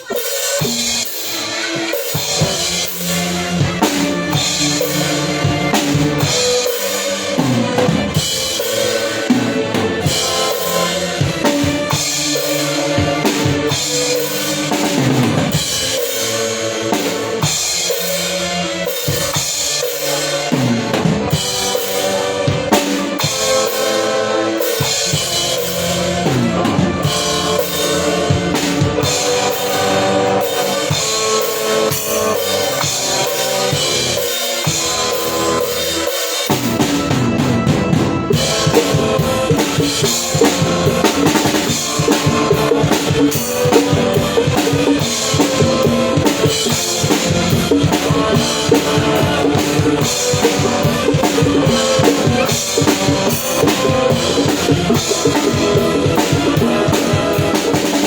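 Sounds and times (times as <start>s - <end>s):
drum kit steady beat: 0.0s - 58.0s
live band playing instrumental: 0.0s - 58.0s.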